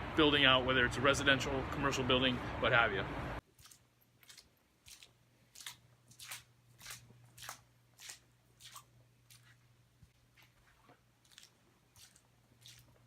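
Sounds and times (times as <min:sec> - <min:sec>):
low steady hum: 0:00.0 - 0:13.0
footsteps crunching: 0:04.2 - 0:13.0.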